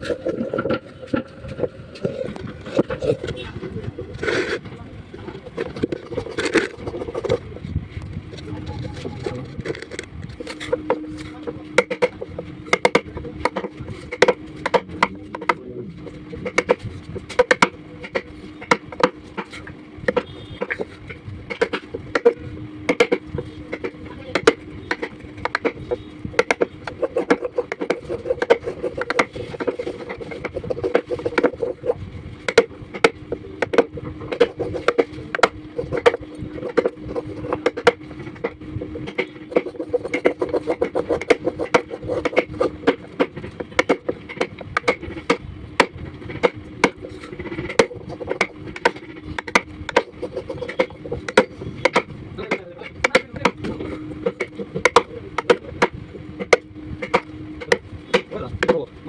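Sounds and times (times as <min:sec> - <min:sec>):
steady low hum: 0:00.0 - 0:59.0
tool knocking on wood: 0:11.8 - 0:15.6, 0:21.5 - 0:58.8.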